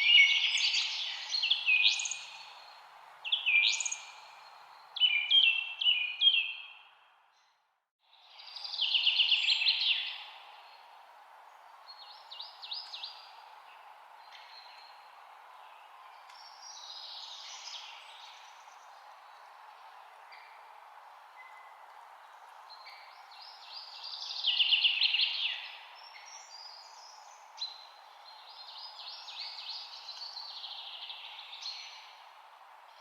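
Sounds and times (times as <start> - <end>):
songbirds chirping and singing: 0.0 - 2.7, 3.3 - 7.0
steady background hiss: 8.1 - 33.0.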